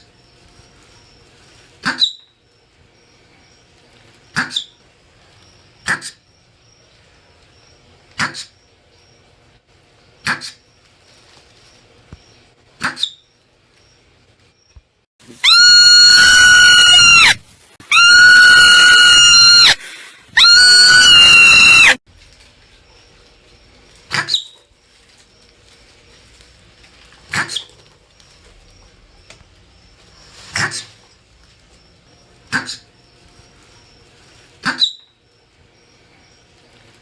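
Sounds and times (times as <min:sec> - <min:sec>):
marmot high-pitched calls: 0:15.4 - 0:17.3
marmot short sharp chirps: 0:34.6 - 0:35.1.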